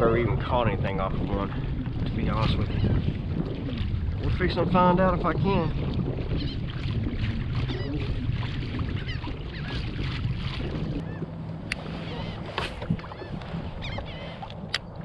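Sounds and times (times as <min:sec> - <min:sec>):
water rumbling around a kayak: 0:00.0 - 0:15.0
wind: 0:00.0 - 0:15.0
birds short calls: 0:11.8 - 0:14.5.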